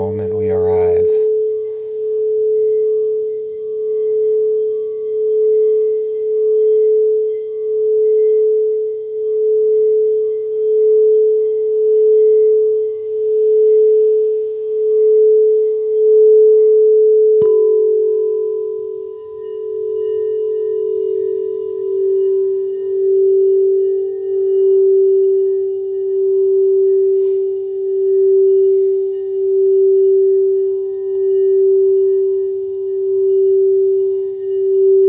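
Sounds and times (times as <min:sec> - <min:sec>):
singing bowl sustained tone: 0:00.0 - 0:35.0
struck bowl ringing: 0:17.3 - 0:35.0.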